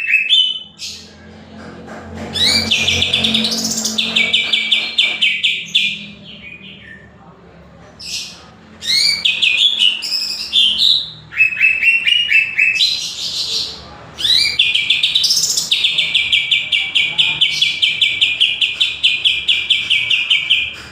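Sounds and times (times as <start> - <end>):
bird chirping and whistling: 0.0 - 1.0, 2.4 - 7.0, 8.8 - 13.3, 14.2 - 20.7.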